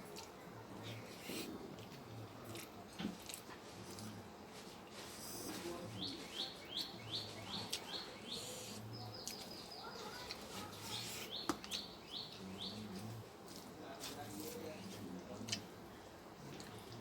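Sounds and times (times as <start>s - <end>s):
bird chirping: 5.9s - 13.0s.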